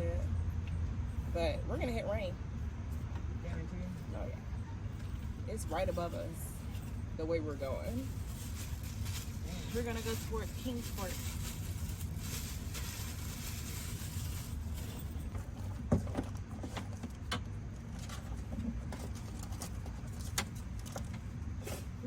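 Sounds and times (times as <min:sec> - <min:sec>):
steady low rumble: 0:00.0 - 0:15.8.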